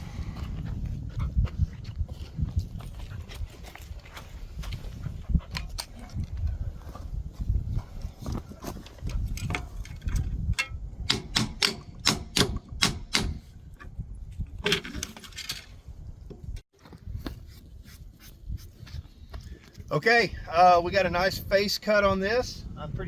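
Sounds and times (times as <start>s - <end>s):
metallic taps and knocks: 9.4s - 13.4s.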